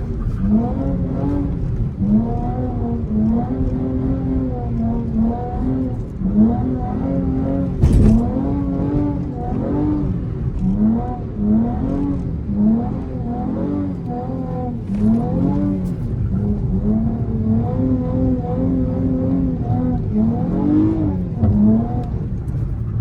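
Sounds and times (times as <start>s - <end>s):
car engine revving: 0.0s - 23.0s
loud thump: 7.8s - 8.5s.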